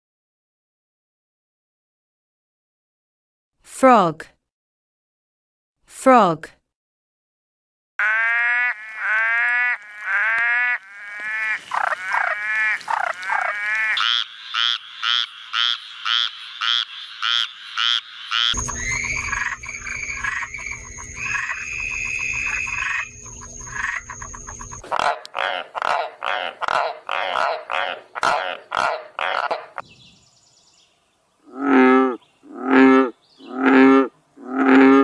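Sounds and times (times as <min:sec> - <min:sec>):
frogs croaking: 0:08.0 - 0:29.8, 0:31.4 - 0:35.0.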